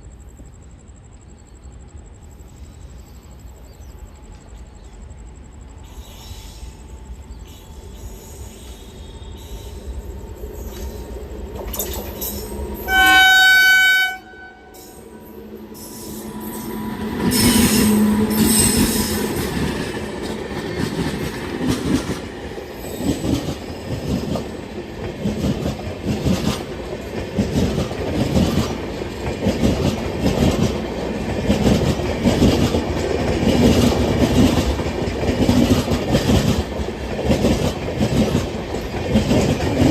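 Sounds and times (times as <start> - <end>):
train passing: 0.0 - 39.9
train horn: 12.8 - 15.4
wheels clacking over rail joints: 16.7 - 39.9.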